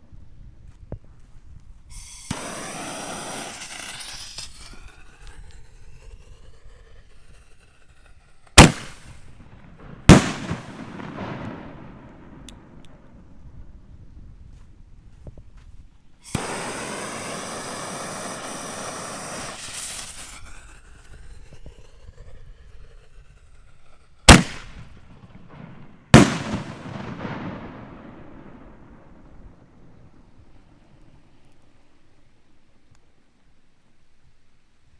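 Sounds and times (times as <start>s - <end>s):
firework shell hissing: 1.9s - 12.8s, 16.2s - 29.0s
loud firework bangs with echo: 2.0s - 4.8s, 8.6s - 12.8s, 16.3s - 20.4s, 24.3s - 29.6s.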